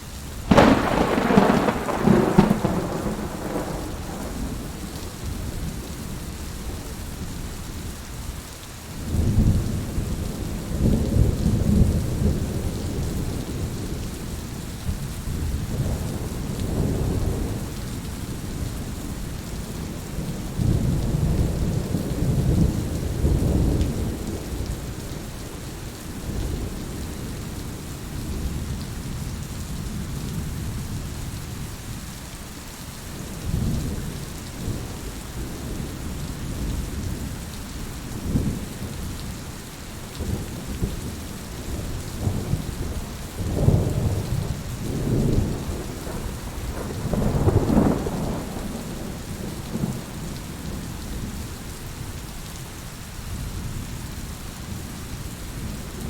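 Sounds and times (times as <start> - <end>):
heavy rain: 0.0 - 56.0
thunder rolling: 0.5 - 5.6, 41.8 - 50.8.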